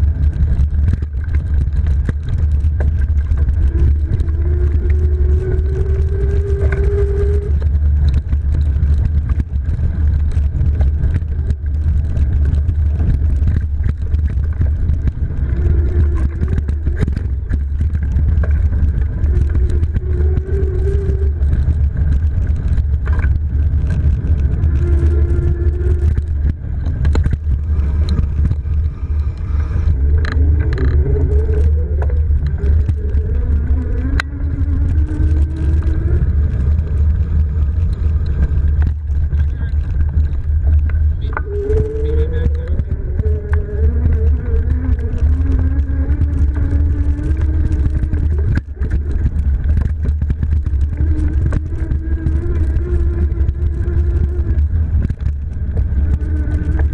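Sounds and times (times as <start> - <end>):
wind and bike riding rumble: 0.0 - 56.9
electric motor whine: 2.8 - 8.4.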